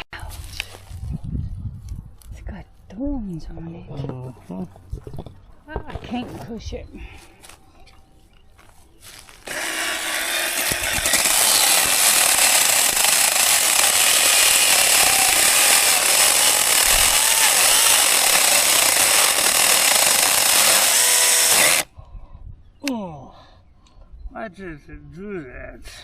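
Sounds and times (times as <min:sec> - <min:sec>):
chainsaw cutting tree: 0:09.4 - 0:21.9.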